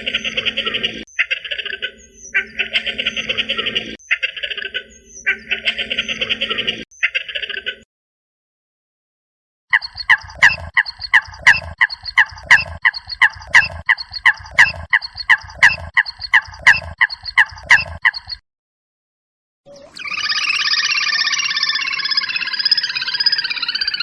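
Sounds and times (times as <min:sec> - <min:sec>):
bird calling harsh notes: 0:09.7 - 0:18.4.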